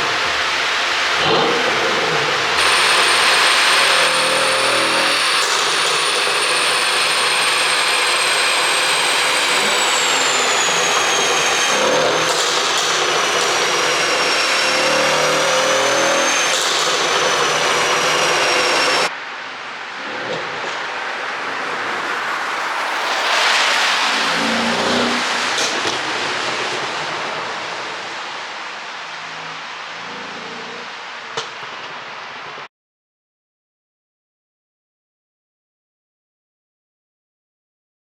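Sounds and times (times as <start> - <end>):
car engine revving: 0.0 - 19.1, 20.0 - 31.1.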